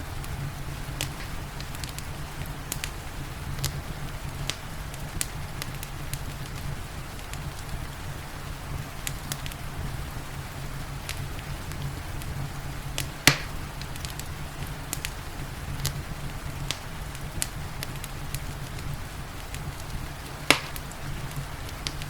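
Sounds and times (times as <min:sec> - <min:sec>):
rain: 0:00.0 - 0:22.0
wood fire crackling: 0:00.0 - 0:22.0.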